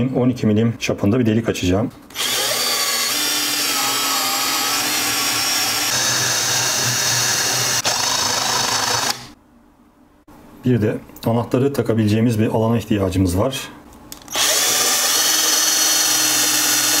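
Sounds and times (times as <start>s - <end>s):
electric drill boring wood: 2.1s - 9.4s, 14.3s - 17.0s.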